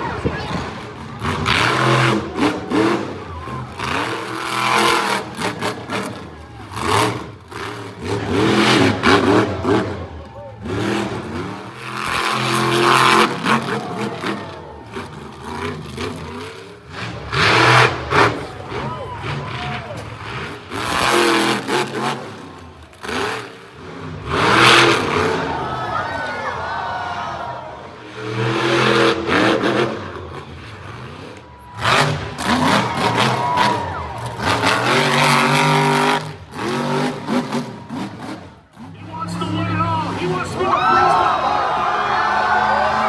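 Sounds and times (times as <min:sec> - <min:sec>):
truck engine revving: 0:00.0 - 0:43.0.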